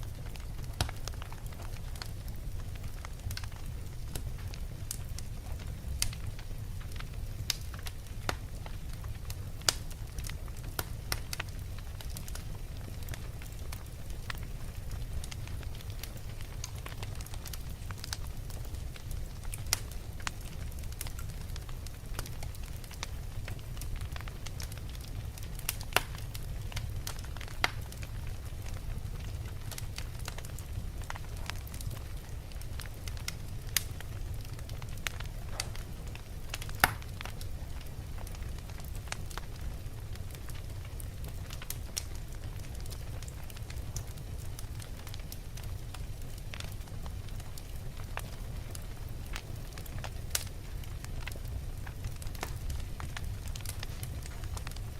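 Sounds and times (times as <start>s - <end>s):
fire crackling and popping: 0.0s - 54.9s
low fire rumble: 0.0s - 54.9s.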